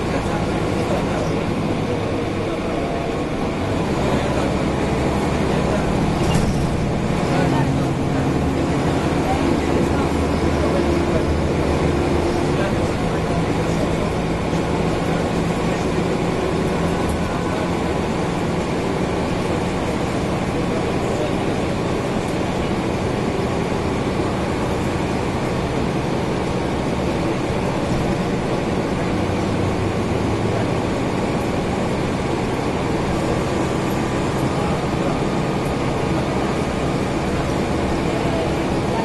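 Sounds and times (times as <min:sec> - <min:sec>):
bus engine running: 0:00.0 - 0:39.0
road noise: 0:00.0 - 0:39.0.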